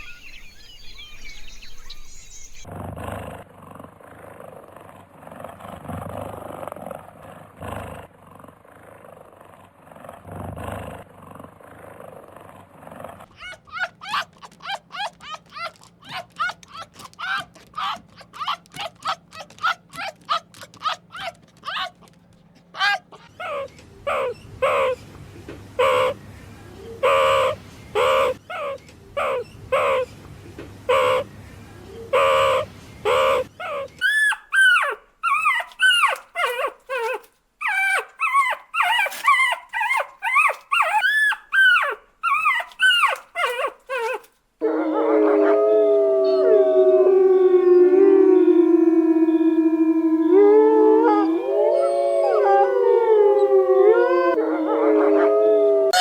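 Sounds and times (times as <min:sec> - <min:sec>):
puppies howling: 0:13.3 - 0:25.0, 0:32.2 - 0:56.0
puppies whimpering and yelping: 0:13.3 - 0:25.0, 0:32.1 - 0:44.3, 0:50.8 - 0:54.4.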